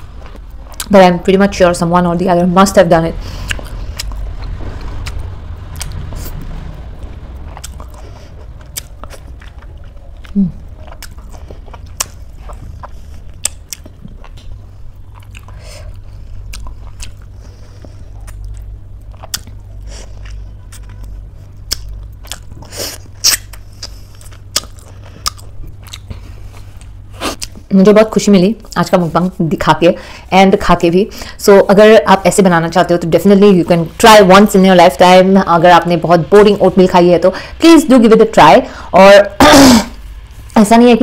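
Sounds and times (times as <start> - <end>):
chewing and biting fruit: 0.0 - 0.9, 3.3 - 27.7
low hum: 0.0 - 41.0
wet mouth clicks: 21.6 - 26.2.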